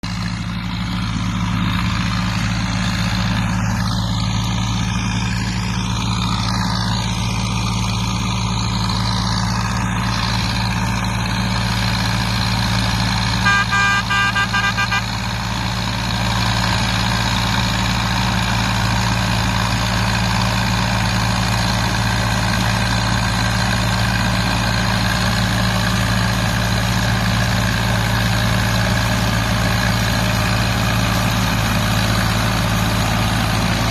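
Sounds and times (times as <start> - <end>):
tractor diesel engine running: 0.0 - 33.9
horn short beeps: 13.4 - 15.2.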